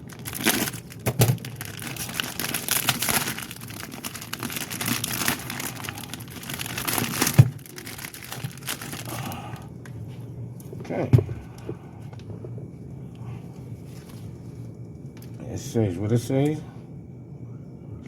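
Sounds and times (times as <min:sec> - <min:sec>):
packaging crinkling and rustling: 0:00.0 - 0:09.6.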